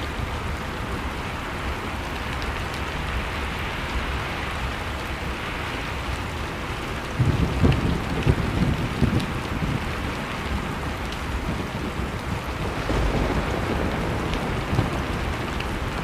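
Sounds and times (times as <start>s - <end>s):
storm wind rushing: 7.1s - 16.0s.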